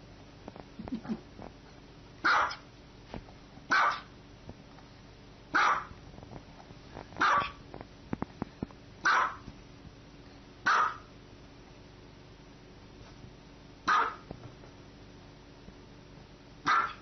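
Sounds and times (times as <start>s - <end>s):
small dog barking: 2.2s - 2.6s, 3.7s - 4.1s, 5.5s - 6.0s, 7.2s - 7.6s, 9.0s - 9.5s, 10.6s - 11.1s, 13.8s - 14.3s, 16.6s - 17.0s.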